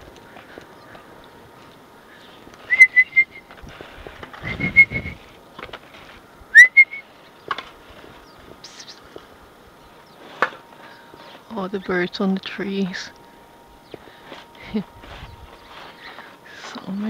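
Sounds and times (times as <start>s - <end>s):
loud whistled chirps: 2.6s - 3.5s, 4.4s - 5.2s, 6.5s - 7.1s.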